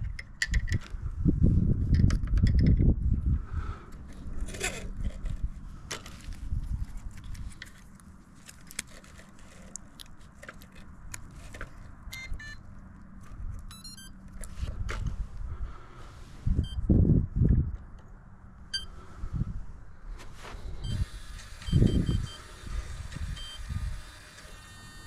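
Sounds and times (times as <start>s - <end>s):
clicks and handling noise: 0.0s - 1.0s, 1.8s - 3.0s, 3.9s - 15.2s
low steady hum: 0.0s - 24.8s
electronic chirping beeps: 12.1s - 12.6s, 13.7s - 14.2s.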